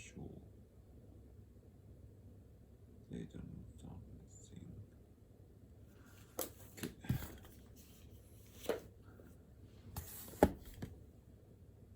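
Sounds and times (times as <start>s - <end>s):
knocks and rustles at a desk: 6.3s - 8.9s, 9.9s - 11.0s.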